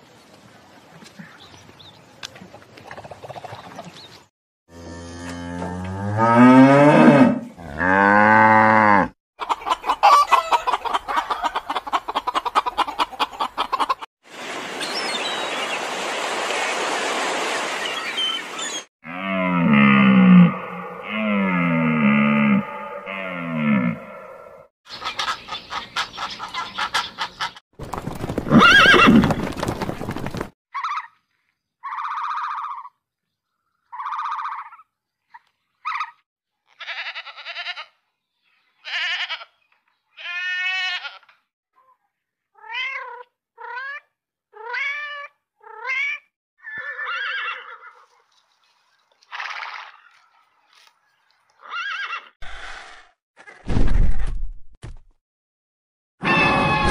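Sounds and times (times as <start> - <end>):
goat bleating: 36.7 - 38.0.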